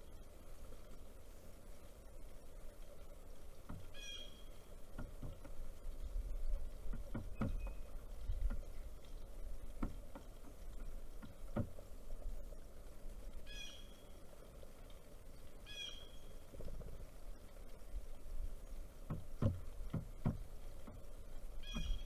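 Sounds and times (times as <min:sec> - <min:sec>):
irregular knocks and taps: 0:03.5 - 0:04.0, 0:04.8 - 0:12.3, 0:18.1 - 0:22.0
harsh bird calls: 0:03.9 - 0:04.6, 0:21.6 - 0:22.0.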